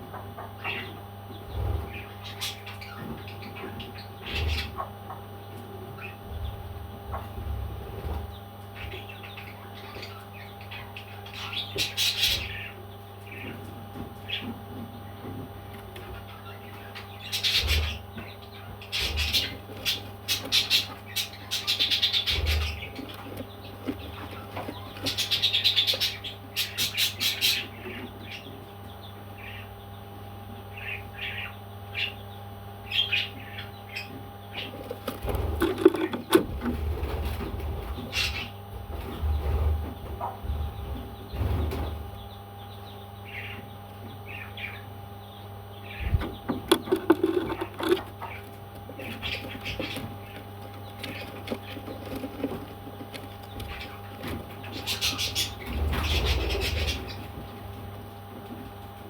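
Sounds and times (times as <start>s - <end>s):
electrical hum: 0.0s - 59.0s
parrot chirping and chattering: 16.1s - 28.5s, 32.9s - 36.7s, 42.8s - 57.3s.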